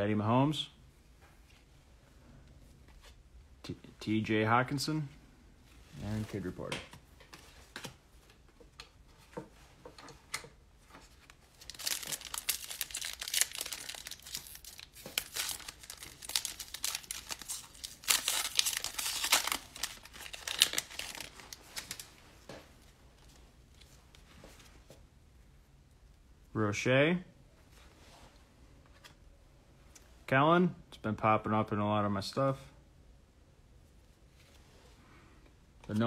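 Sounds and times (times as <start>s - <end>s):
plastic wrapper crinkling and tearing: 11.2s - 22.2s.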